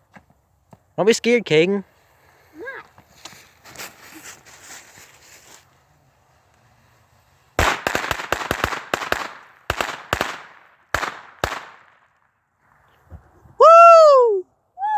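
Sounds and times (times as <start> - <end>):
firecrackers banging: 6.1 - 12.2.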